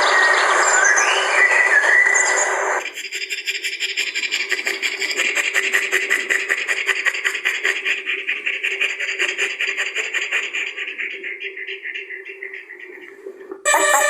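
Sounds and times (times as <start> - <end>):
animal chattering rapidly: 2.9 - 12.8
low steady tone: 13.7 - 14.0.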